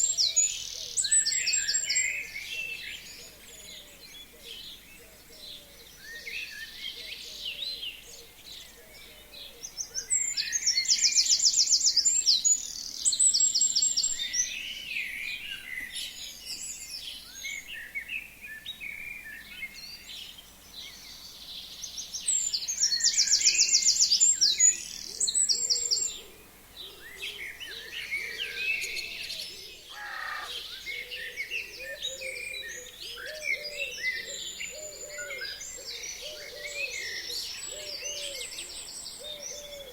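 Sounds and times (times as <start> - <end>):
bird trilling song: 0.0 - 39.9
birds chirping and calling: 19.1 - 39.9.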